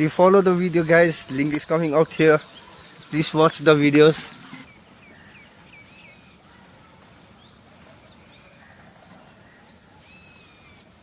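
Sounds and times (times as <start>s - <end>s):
birds chirping: 0.0s - 11.0s
high-pitched insect whine: 8.4s - 11.0s.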